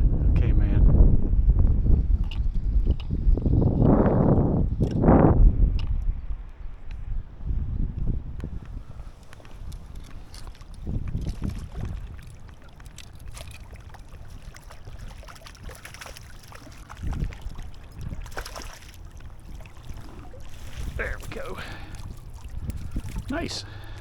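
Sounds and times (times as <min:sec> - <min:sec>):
wind buffeting microphone: 0:00.0 - 0:24.0
stream water running: 0:08.4 - 0:24.0.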